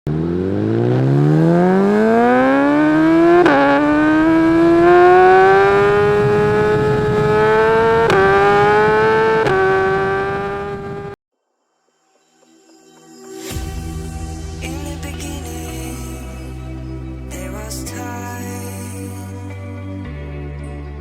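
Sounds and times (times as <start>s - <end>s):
motorcycle engine accelerating: 0.0s - 11.2s.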